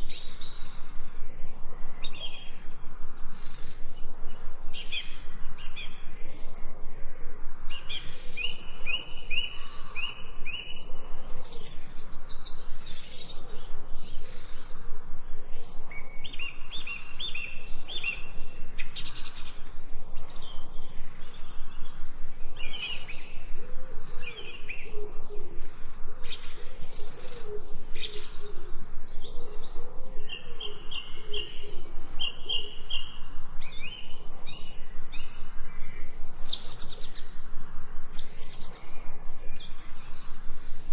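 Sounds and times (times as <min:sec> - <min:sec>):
forest birds chirping: 0:00.0 - 0:40.9
lower-pitched bird calls: 0:22.5 - 0:37.4.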